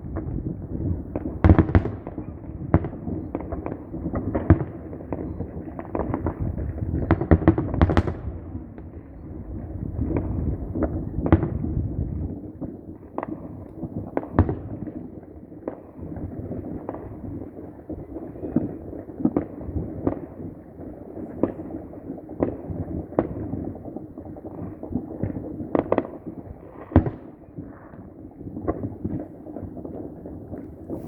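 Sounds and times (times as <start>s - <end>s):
distant explosions rumbling: 0.0s - 14.9s
fireworks bangs: 0.0s - 15.0s, 15.6s - 31.0s.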